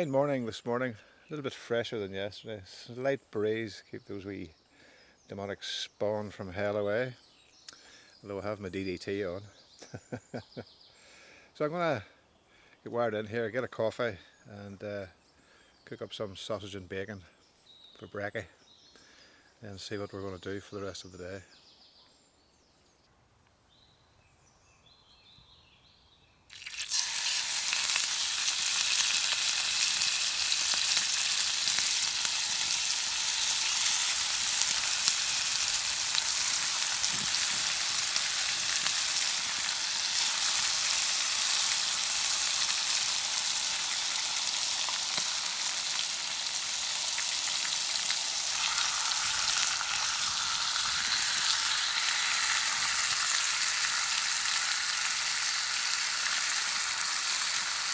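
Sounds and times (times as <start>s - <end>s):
sausages and bacon sizzling: 26.5s - 57.9s.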